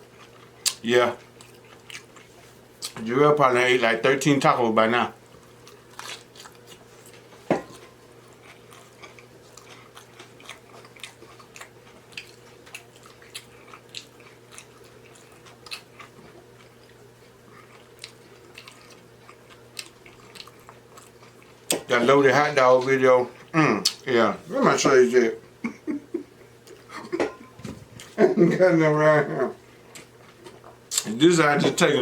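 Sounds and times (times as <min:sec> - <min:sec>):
person chewing with mouth smacks: 0:00.1 - 0:03.0, 0:05.4 - 0:21.8, 0:23.4 - 0:24.1, 0:29.8 - 0:31.2.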